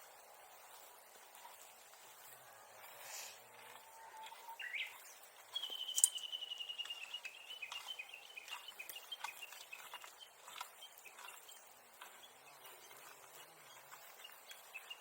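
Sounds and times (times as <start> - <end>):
bird calling: 3.2 - 15.0.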